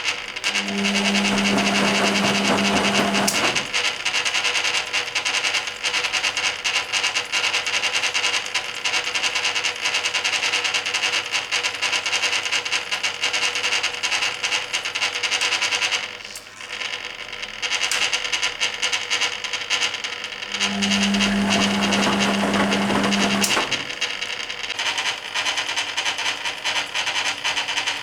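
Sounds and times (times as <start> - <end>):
motor hum: 0.2 - 4.3, 19.9 - 24.8
washing machine sloshing laundry: 0.5 - 4.0, 20.5 - 24.0.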